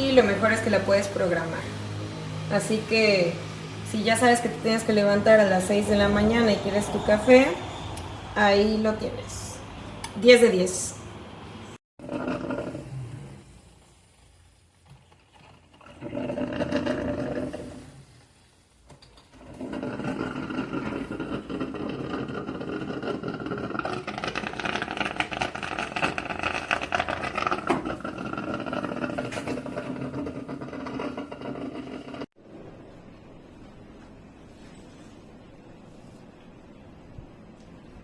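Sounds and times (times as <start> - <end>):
coffee maker rushing and rattling: 12.0 - 13.2, 14.9 - 18.3, 18.9 - 32.3.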